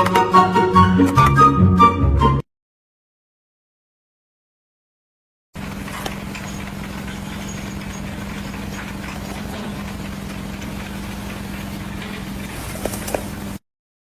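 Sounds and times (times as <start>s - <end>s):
engine running steadily: 5.6s - 13.6s.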